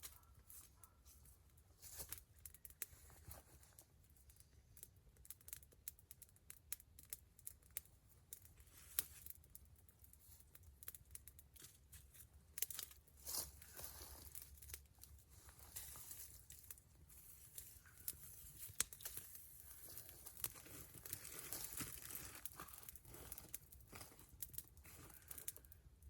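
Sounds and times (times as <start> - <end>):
campfire crackling and popping: 1.2 - 26.0.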